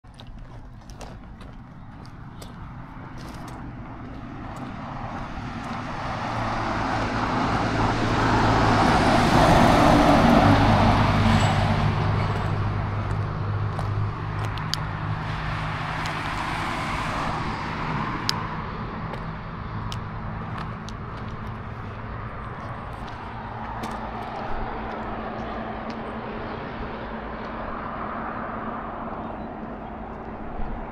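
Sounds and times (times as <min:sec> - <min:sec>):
steady traffic noise: 0:00.0 - 0:30.9
vehicle passing by: 0:01.0 - 0:30.9.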